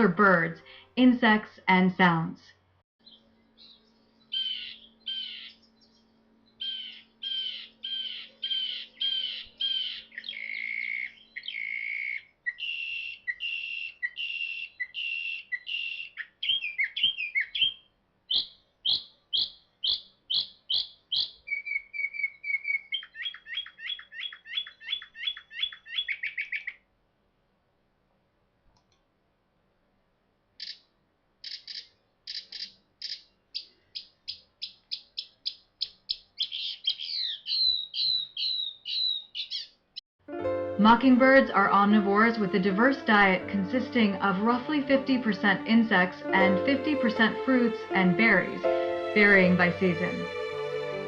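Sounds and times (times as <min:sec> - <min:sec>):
mockingbird singing: 0:03.0 - 0:26.8, 0:30.6 - 0:40.0.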